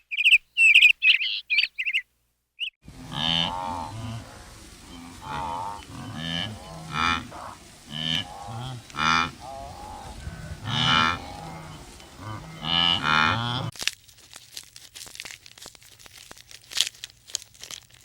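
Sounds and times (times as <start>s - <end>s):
livestock calling: 2.6s - 13.7s.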